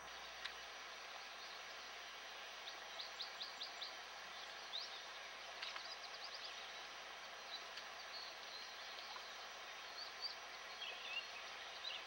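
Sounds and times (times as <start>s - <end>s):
steady hiss: 0.0s - 12.0s
songbird singing: 2.6s - 12.0s.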